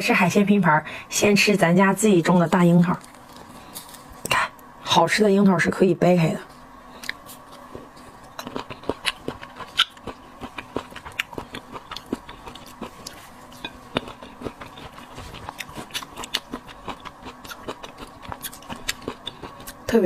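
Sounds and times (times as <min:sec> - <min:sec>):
faint steady hum: 0:00.0 - 0:20.0
chewing crisp cherries: 0:07.0 - 0:19.9.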